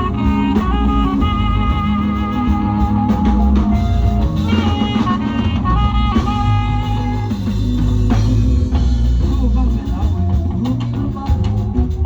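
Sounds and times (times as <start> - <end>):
drum kit beat: 0.0 - 12.0
live band playing: 0.0 - 12.0.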